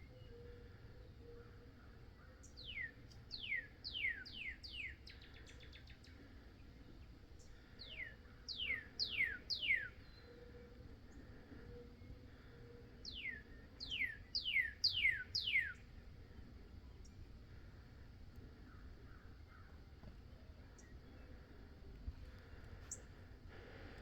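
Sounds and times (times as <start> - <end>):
songbird whistling and trilling: 2.5 - 5.9, 7.8 - 10.7, 13.0 - 15.9.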